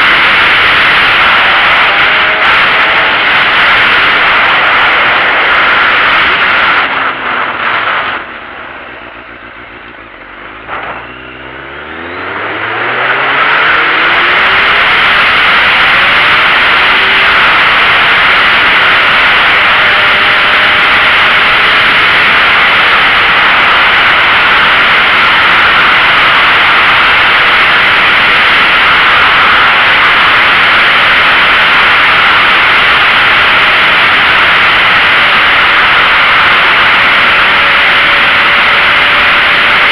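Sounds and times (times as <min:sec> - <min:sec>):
wind rush on microphone: 0:00.0 - 0:08.4
motorcycle engine accelerating: 0:00.0 - 0:39.9.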